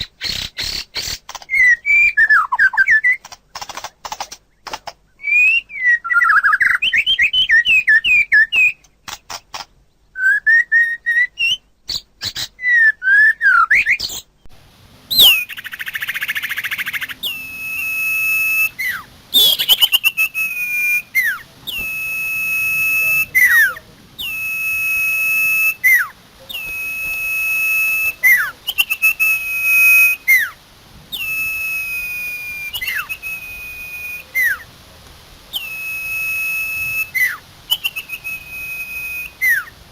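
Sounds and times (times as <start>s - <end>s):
bird harsh rasp: 0.0s - 1.6s
long clear bird whistle: 0.0s - 3.2s, 5.1s - 8.9s, 10.1s - 14.3s, 15.1s - 34.7s, 35.5s - 39.8s
warbled chattering birdsong: 0.0s - 39.9s.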